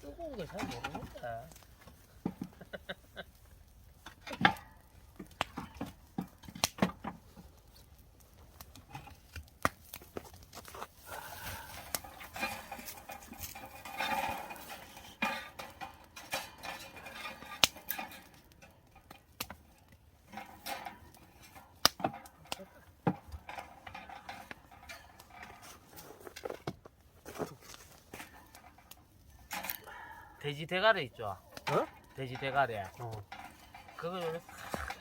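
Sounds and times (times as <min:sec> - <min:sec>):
metal utensils clinking: 0:00.1 - 0:01.6, 0:31.2 - 0:35.0.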